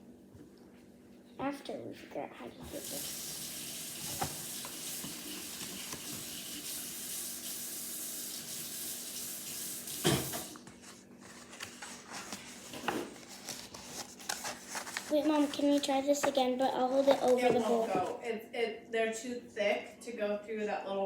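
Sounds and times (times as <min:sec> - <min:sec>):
tap water running into sink: 0:02.6 - 0:10.6.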